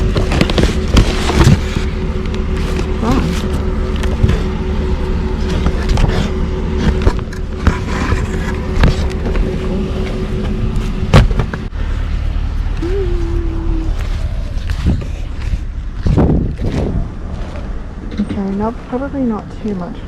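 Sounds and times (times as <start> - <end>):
items knocking and clattering: 0.0 - 1.9, 6.8 - 9.5
vehicle engine running: 0.0 - 20.0.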